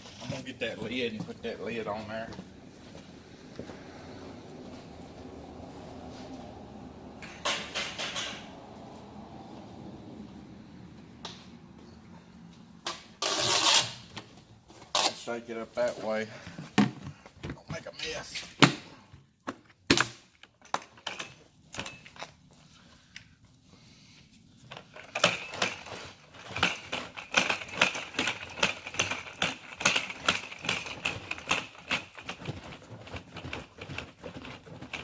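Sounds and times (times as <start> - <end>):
plastic bucket rattling when shaken: 25.3 - 35.0.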